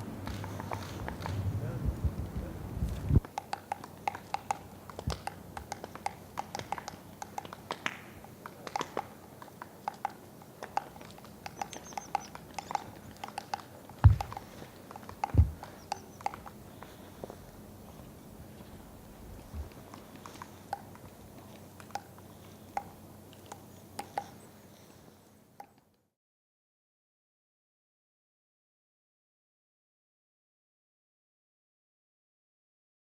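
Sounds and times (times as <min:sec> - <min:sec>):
woodpecker pecking at wood: 0:00.2 - 0:01.5, 0:02.9 - 0:24.9
dull thumps: 0:14.0 - 0:14.5, 0:15.2 - 0:15.8.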